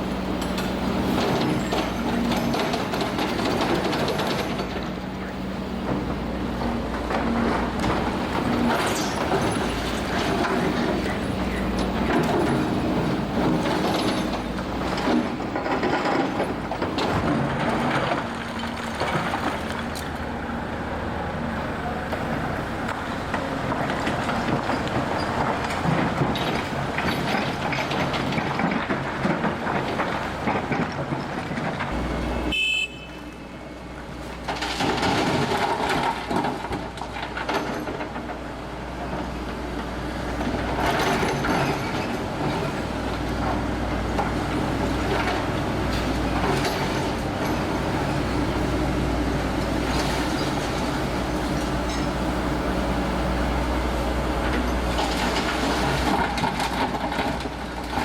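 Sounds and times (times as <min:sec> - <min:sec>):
machinery engine rumble: 0:00.0 - 0:58.0
masonry crashing and clattering: 0:34.5 - 0:38.4.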